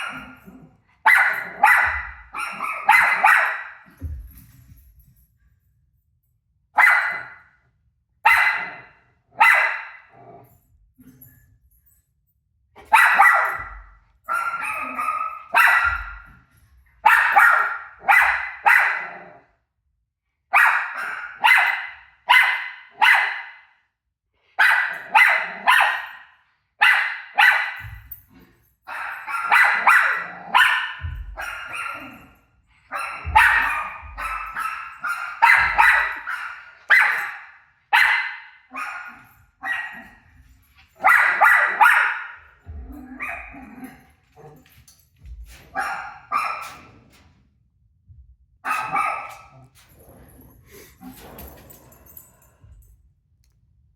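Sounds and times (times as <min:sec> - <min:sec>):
dog barking: 0:00.0 - 0:04.2, 0:06.8 - 0:07.6, 0:08.2 - 0:10.4, 0:12.8 - 0:16.3, 0:17.0 - 0:19.4, 0:20.5 - 0:23.8, 0:24.6 - 0:28.1, 0:28.9 - 0:40.3, 0:41.0 - 0:44.0, 0:45.7 - 0:47.0, 0:48.6 - 0:49.7.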